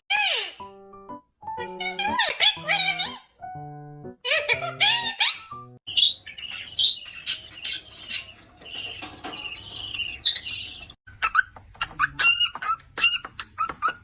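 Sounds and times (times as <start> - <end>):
small birds chirping: 4.2 - 14.0.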